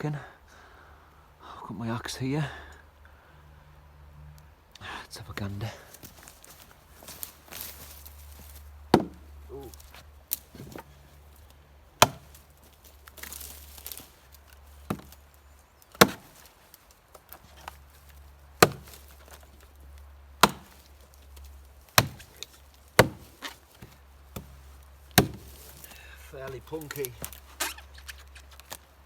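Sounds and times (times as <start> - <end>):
axe chopping log: 6.0 - 11.0, 12.0 - 15.3, 15.9 - 19.8, 20.4 - 27.7.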